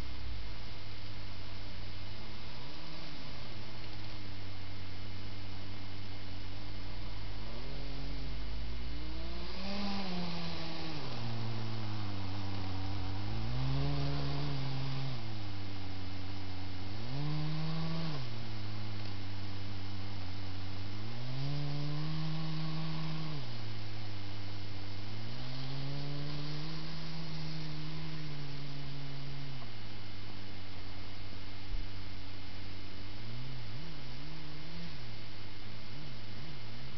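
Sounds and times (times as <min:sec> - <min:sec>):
electric motor whining: 0:07.3 - 0:29.4.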